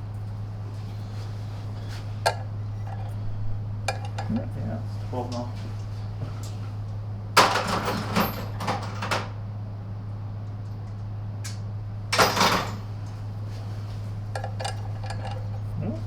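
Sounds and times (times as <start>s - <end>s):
steady low hum: 0.0s - 7.4s, 9.3s - 16.0s
tools clattering on workbench: 12.2s - 12.9s.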